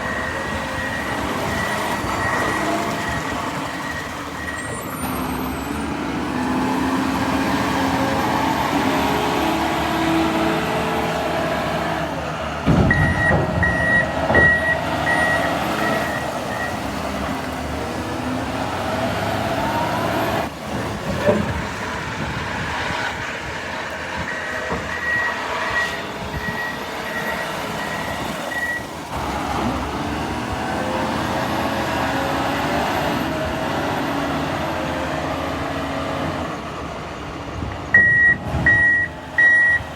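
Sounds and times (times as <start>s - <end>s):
reversing alarm beeping: 0.0s - 4.9s, 12.8s - 16.9s, 24.2s - 28.9s, 37.9s - 39.9s
diesel engine under load: 0.0s - 39.9s
heavy thuds: 12.6s - 15.2s.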